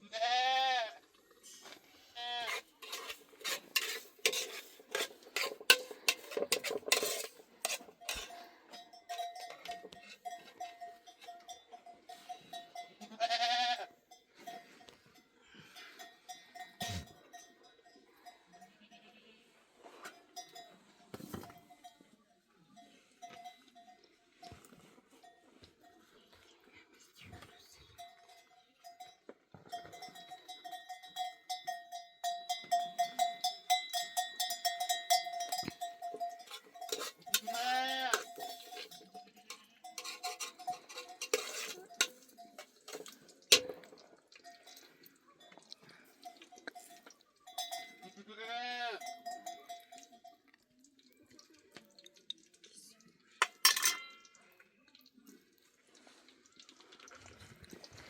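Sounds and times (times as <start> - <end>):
animal bleating: 0.0 - 1.0, 2.0 - 2.7, 13.0 - 14.0, 37.3 - 38.4, 48.0 - 49.1
animal bells clanking: 2.4 - 51.5, 53.4 - 54.5.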